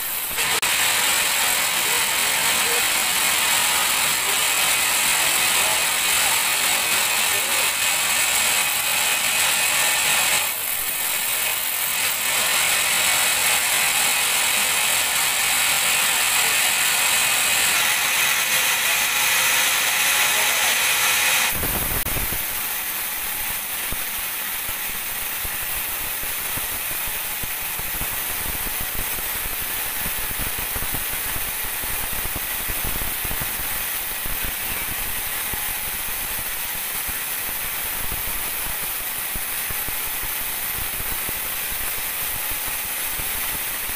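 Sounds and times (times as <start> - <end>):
band saw blade cutting log: 0.0 - 30.7.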